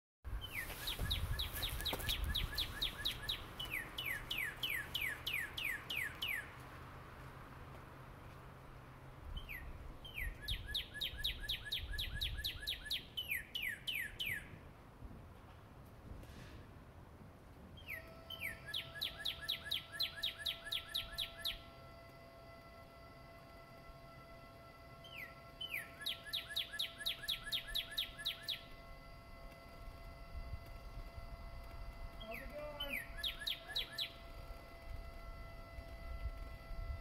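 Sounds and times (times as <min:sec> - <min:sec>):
faint low hum: 0:00.3 - 0:37.0
songbird whistling: 0:00.4 - 0:06.5, 0:09.4 - 0:14.6, 0:17.8 - 0:21.7, 0:25.0 - 0:28.8, 0:32.2 - 0:34.4.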